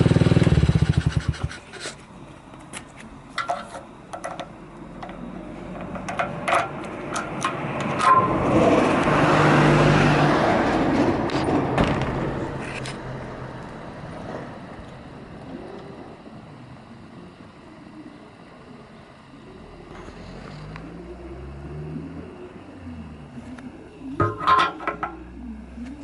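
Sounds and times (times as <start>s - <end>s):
motor vehicle passing by: 7.6s - 14.6s, 19.7s - 23.6s.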